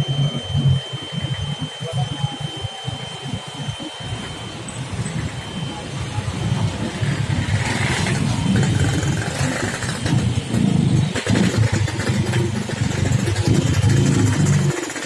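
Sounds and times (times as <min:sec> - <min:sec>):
road traffic: 0:00.0 - 0:15.0
motorcycle engines passing: 0:04.0 - 0:14.8.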